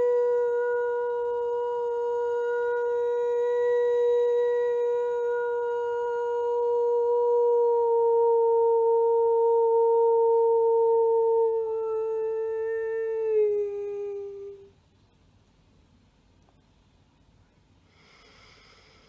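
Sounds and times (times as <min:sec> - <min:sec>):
woman singing a long note: 0:00.0 - 0:14.7.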